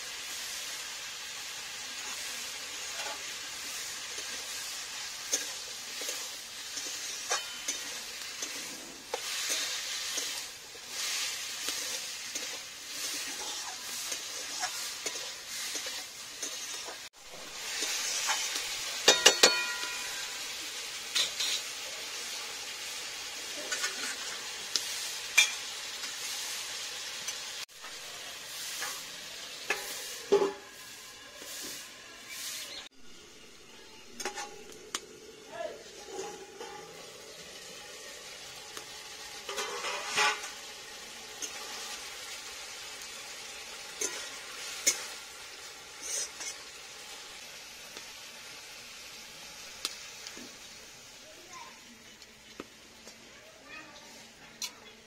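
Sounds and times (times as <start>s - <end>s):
vegetables sizzling in a wok: 0.0s - 55.0s
metal spatula scraping a pan: 1.5s - 21.8s, 23.5s - 26.6s, 28.3s - 32.9s, 34.1s - 34.7s, 35.9s - 37.1s, 39.2s - 42.4s, 43.8s - 46.8s.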